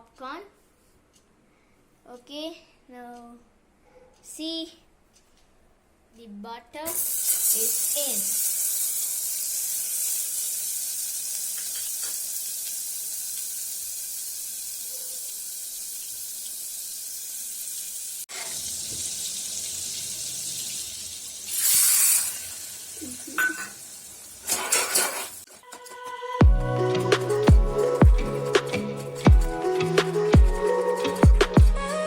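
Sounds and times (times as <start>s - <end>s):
butter sizzling in a pan: 6.9s - 25.5s.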